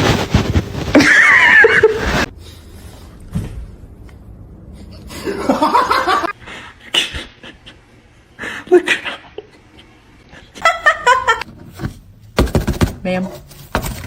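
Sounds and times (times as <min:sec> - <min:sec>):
person laughing: 0:00.9 - 0:02.3, 0:05.1 - 0:06.3.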